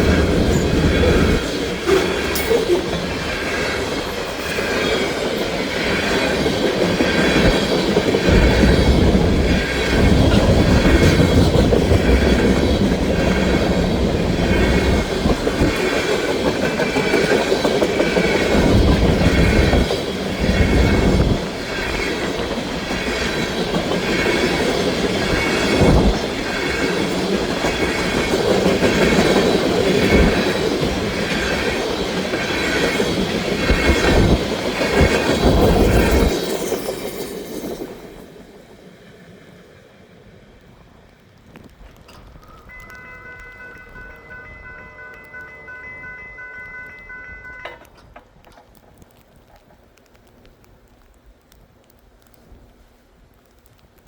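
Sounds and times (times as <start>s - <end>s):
freight train wheels clacking: 0.0s - 38.4s, 41.6s - 49.9s
heavy train rumble: 0.0s - 54.0s.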